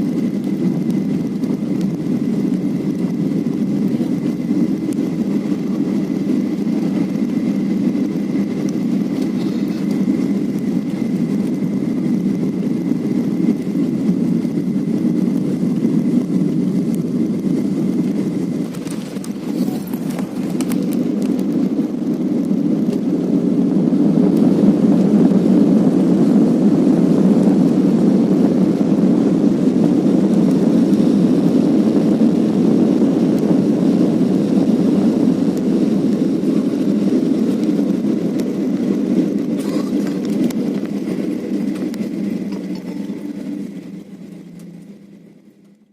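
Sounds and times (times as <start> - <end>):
airliner cabin engine rumble: 0.0 - 45.9
faint high whine: 1.8 - 21.8, 39.4 - 45.9.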